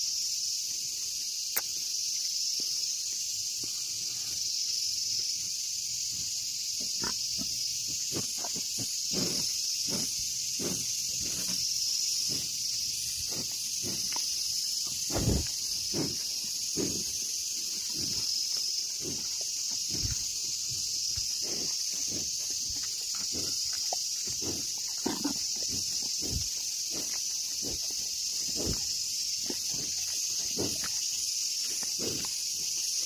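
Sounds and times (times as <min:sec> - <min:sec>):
insect buzzing: 0:00.0 - 0:33.0
snuffles: 0:08.1 - 0:11.6, 0:12.2 - 0:12.6, 0:15.0 - 0:17.2, 0:24.2 - 0:31.0, 0:31.7 - 0:32.4.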